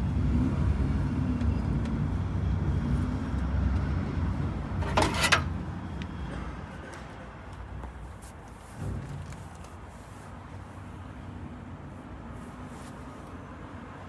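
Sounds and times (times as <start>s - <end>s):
vehicle engine rumble: 0.0s - 11.6s
clattering noise: 4.8s - 5.6s.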